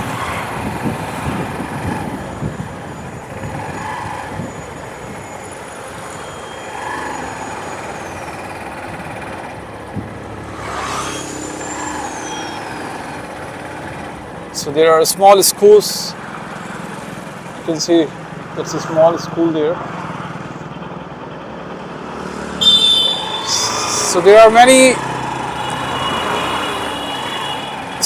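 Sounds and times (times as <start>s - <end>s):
wind buffeting microphone: 0.0s - 5.3s
road noise: 0.0s - 28.0s.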